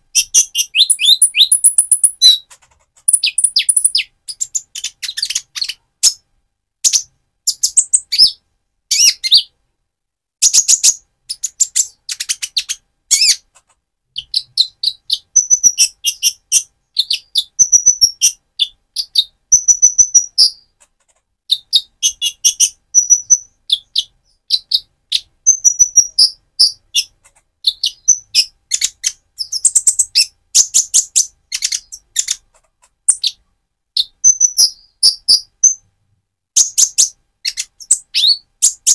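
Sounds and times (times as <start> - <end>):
bird chirping and twittering: 0.1 - 6.2, 6.8 - 9.5, 10.4 - 13.5, 14.2 - 20.8, 21.5 - 33.4, 34.0 - 35.8, 36.6 - 38.9.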